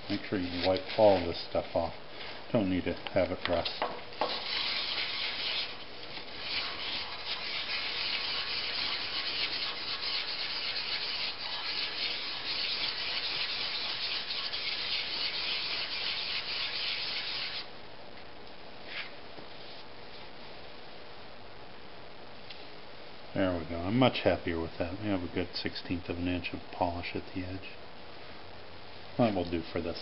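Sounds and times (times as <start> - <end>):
chisel scraping on sandpaper: 4.2 - 5.8, 6.4 - 17.6.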